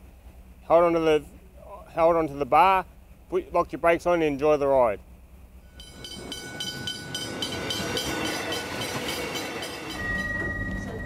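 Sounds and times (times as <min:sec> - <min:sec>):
train rumbling past: 0:05.5 - 0:11.0
higher tone: 0:05.6 - 0:11.0
steady whine: 0:05.6 - 0:11.0
wheels clicking over rail joints: 0:05.8 - 0:11.0.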